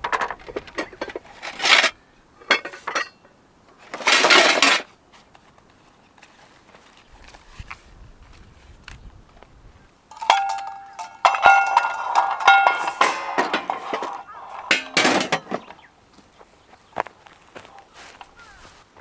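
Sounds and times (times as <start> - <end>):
metal cookware clanging: 0.0 - 3.3, 10.1 - 15.8.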